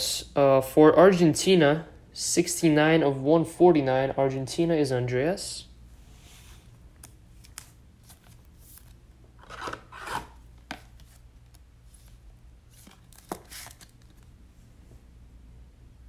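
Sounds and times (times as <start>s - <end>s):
cards rubbing and scraping: 6.6s - 11.2s, 11.9s - 14.3s.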